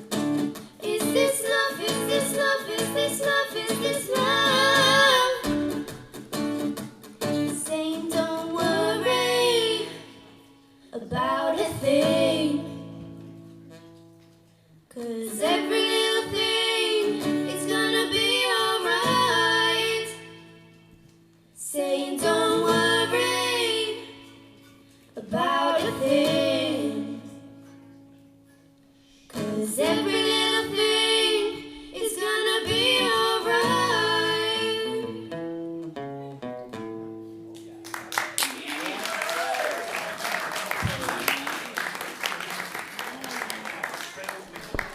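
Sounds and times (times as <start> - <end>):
acoustic guitar: 0.0 - 38.4
female voices singing: 0.8 - 5.6, 7.6 - 10.2, 11.0 - 12.8, 14.9 - 20.4, 21.6 - 24.4, 25.2 - 27.4, 29.3 - 35.2.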